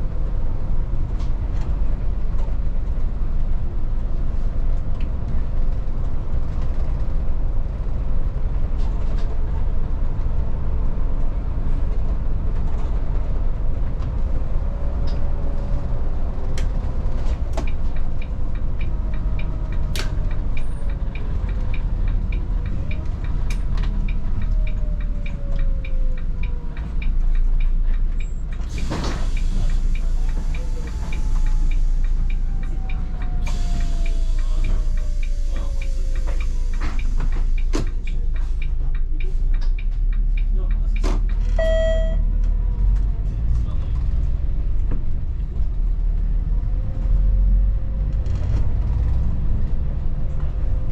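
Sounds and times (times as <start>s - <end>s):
bus diesel engine: 0.0s - 50.9s
road rumble with rattles: 0.0s - 50.9s
regular ticking: 17.6s - 28.7s, 29.7s - 41.4s.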